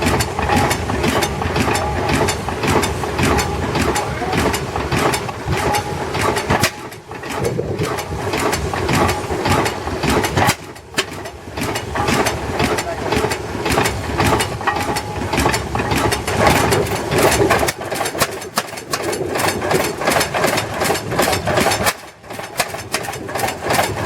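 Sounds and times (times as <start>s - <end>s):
tractor engine knocking: 0.0s - 24.0s.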